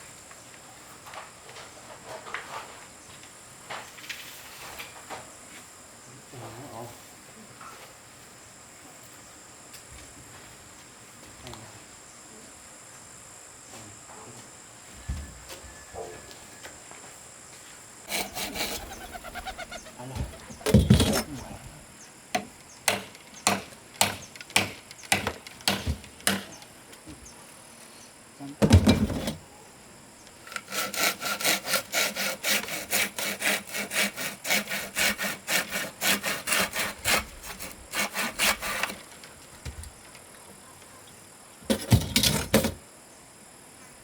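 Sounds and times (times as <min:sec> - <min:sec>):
hand saw cutting wood: 0:18.1 - 0:21.4, 0:30.5 - 0:39.1.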